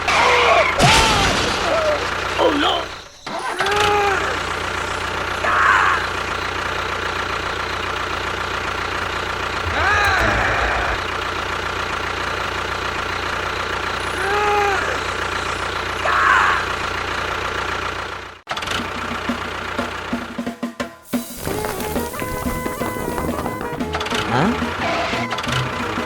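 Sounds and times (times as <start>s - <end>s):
small motor droning: 9.1s - 16.1s.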